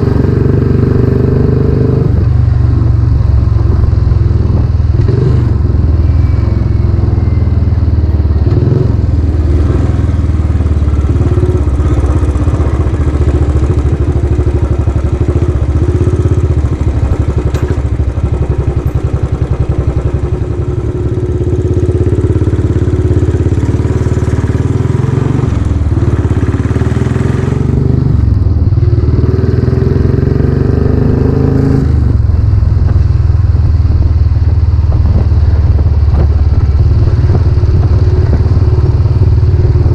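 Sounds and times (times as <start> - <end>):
motorcycle engine thumping: 9.8 - 23.8, 32.1 - 39.9.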